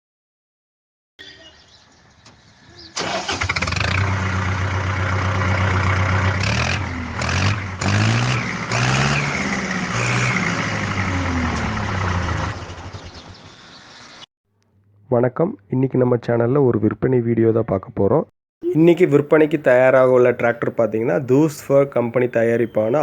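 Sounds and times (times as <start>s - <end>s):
diesel tractor engine revving: 2.9s - 14.2s.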